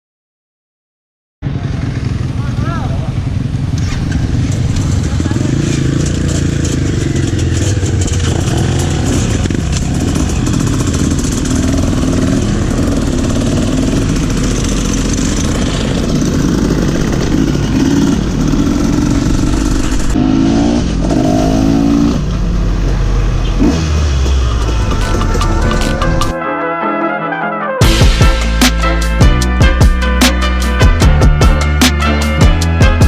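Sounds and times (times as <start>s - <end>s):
motorcycle engine revving: 1.4s - 26.4s.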